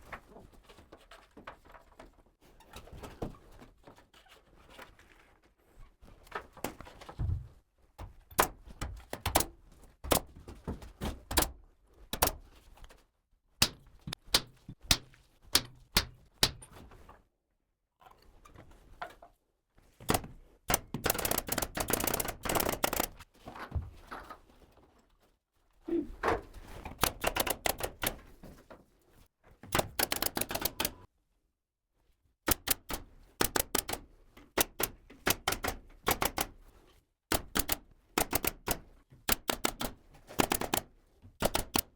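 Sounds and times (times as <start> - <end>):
nail gun firing into wood: 20.1 - 23.2, 27.0 - 28.2, 32.5 - 36.6, 37.3 - 41.9.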